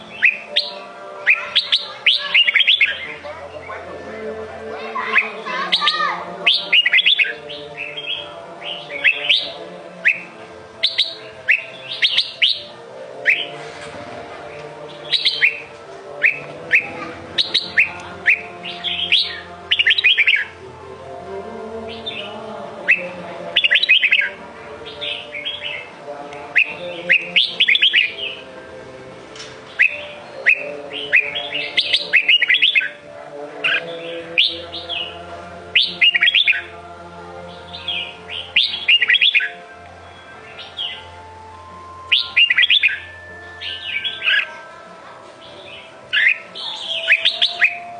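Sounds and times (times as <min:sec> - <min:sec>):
bird singing whistled phrases: 0:00.1 - 0:03.1, 0:05.1 - 0:13.5, 0:15.1 - 0:20.5, 0:22.9 - 0:24.4, 0:26.6 - 0:28.4, 0:29.7 - 0:33.0, 0:35.8 - 0:36.7, 0:37.8 - 0:41.2, 0:41.9 - 0:44.7, 0:45.6 - 0:47.9.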